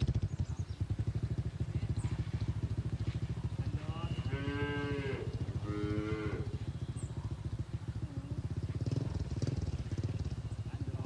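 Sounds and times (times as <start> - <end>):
low engine-like rumble: 0.0 - 11.0
cattle mooing: 4.0 - 6.6.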